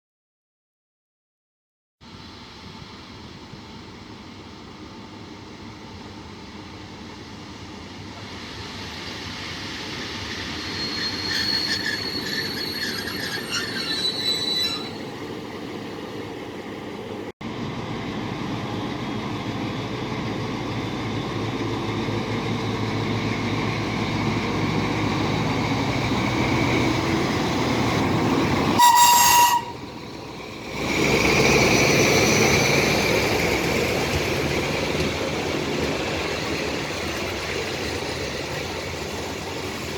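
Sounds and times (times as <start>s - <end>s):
diesel train running noise: 2.0s - 39.9s
high wheel squeal: 8.4s - 15.3s, 28.7s - 30.0s
train horn blast: 28.8s - 30.0s.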